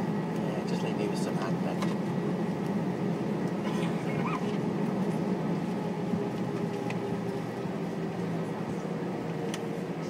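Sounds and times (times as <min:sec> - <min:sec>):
jet engines taxiing cabin drone: 0:00.0 - 0:10.0.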